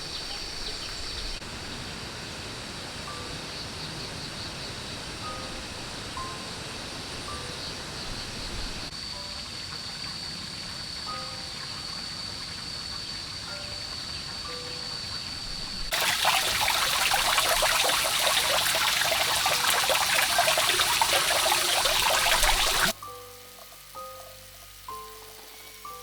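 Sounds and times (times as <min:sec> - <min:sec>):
soft background music: 0:02.6 - 0:26.0
water running and splashing: 0:15.2 - 0:26.0
faint hiss: 0:15.9 - 0:26.0.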